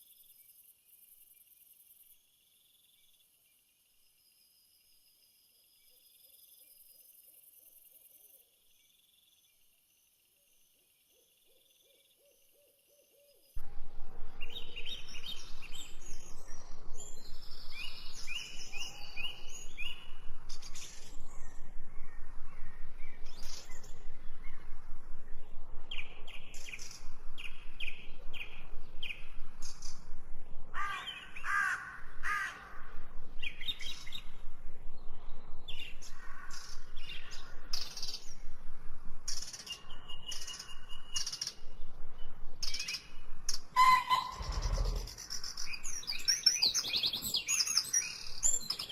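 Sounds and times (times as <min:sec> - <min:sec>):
birds chirping and calling: 0:14.4 - 0:24.7, 0:30.8 - 0:34.3, 0:39.3 - 0:48.9.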